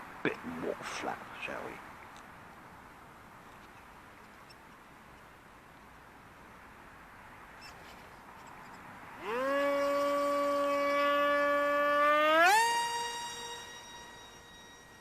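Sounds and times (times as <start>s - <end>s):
low hiss of wind: 0.0s - 15.0s
model plane motor whine: 9.2s - 15.0s.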